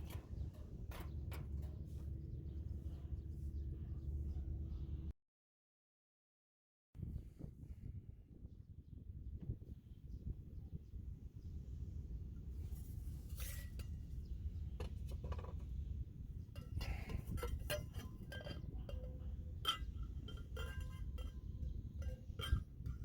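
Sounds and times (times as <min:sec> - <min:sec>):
steady low rumble: 0:00.0 - 0:05.1.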